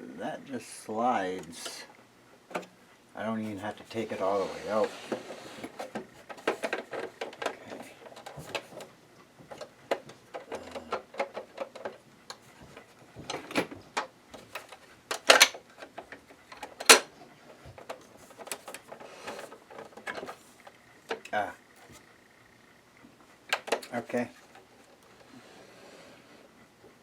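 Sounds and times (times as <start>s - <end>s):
plastic casing clacks: 9.5s - 20.4s.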